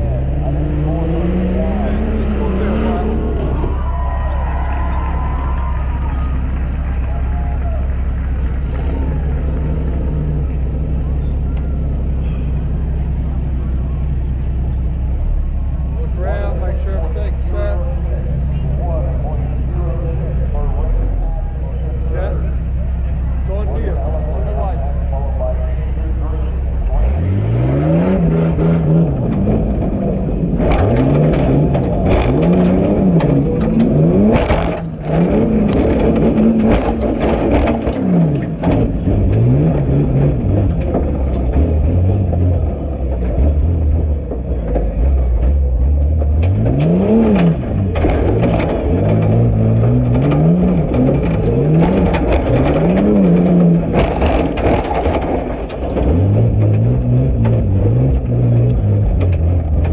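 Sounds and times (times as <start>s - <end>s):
engine revving hard: 0.0s - 3.8s, 26.8s - 44.2s, 45.0s - 59.9s
sharp knocks and bangs: 30.6s - 42.5s, 44.3s - 59.9s.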